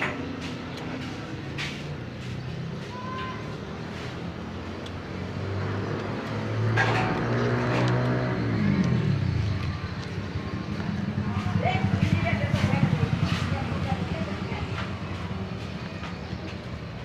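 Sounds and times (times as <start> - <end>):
vehicle engine passing by: 0.0 - 17.0.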